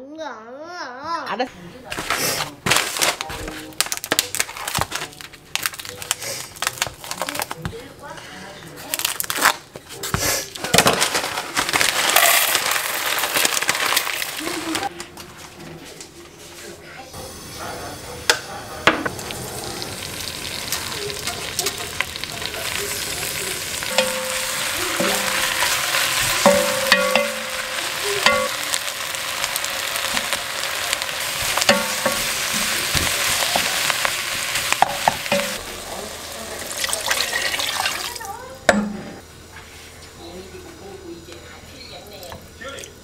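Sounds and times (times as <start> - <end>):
food sizzling in oil: 10.8 - 14.9, 17.2 - 38.7.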